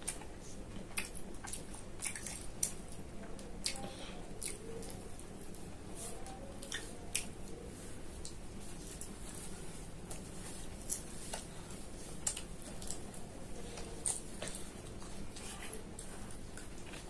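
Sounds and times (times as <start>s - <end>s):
wet chewing clicks and smacks: 0.0s - 5.0s, 12.2s - 13.2s
low steady hum: 0.0s - 17.0s.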